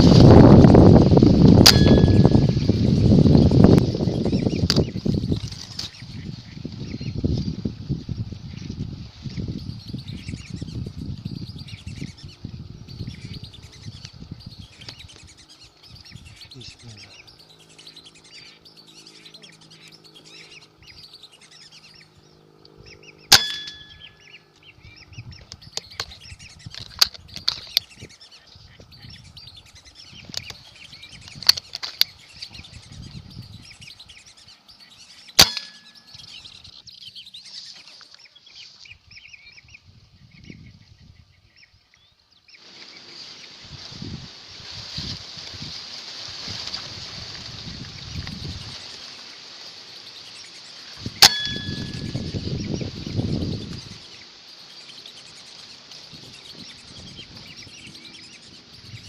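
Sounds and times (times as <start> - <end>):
birds chirping and whistling: 0.0 - 45.8, 46.5 - 59.0
steady hiss: 42.6 - 51.3.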